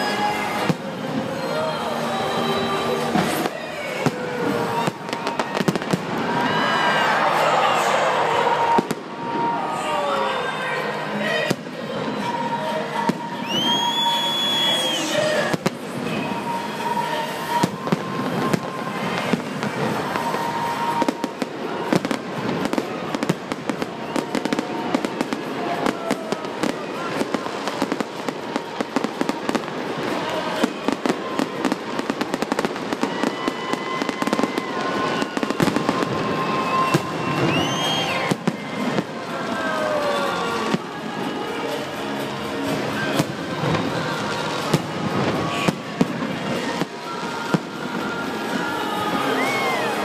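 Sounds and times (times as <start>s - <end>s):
fireworks bangs and crackling: 0.0s - 50.0s
fireworks rising whistles: 13.0s - 39.2s.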